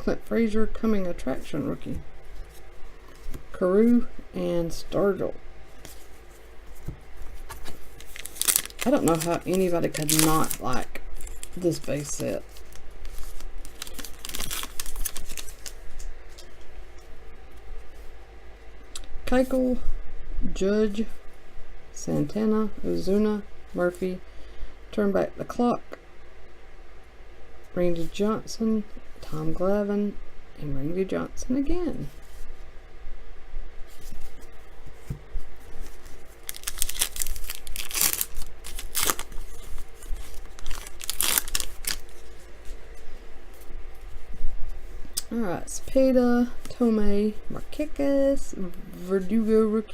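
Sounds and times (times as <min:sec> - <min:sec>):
wrapper tearing and crinkling: 0:07.5 - 0:16.1, 0:35.8 - 0:42.3.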